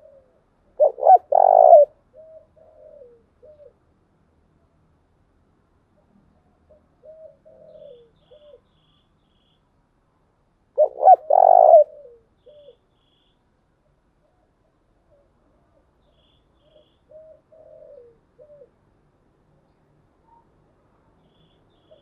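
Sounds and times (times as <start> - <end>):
dove cooing: 0.0 - 3.8, 6.7 - 8.6, 10.8 - 12.8, 16.6 - 18.8.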